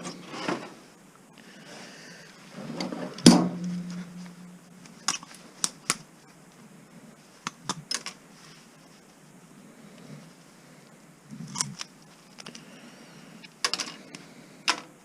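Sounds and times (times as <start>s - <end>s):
struck metal ringing: 3.2s - 4.8s.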